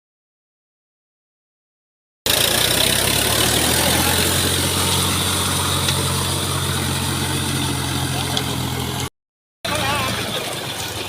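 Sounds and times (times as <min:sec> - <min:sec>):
tractor diesel engine running: 0:02.3 - 0:09.1, 0:09.7 - 0:11.0.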